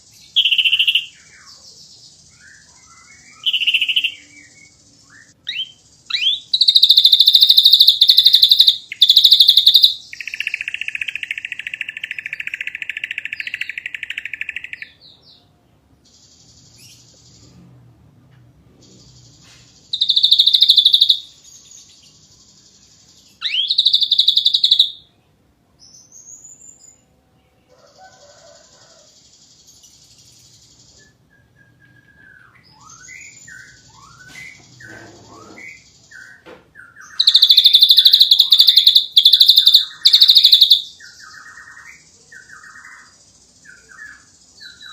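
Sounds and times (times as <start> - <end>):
bird harsh rattling song: 5.5 - 14.8, 19.2 - 25.0, 37.1 - 43.1.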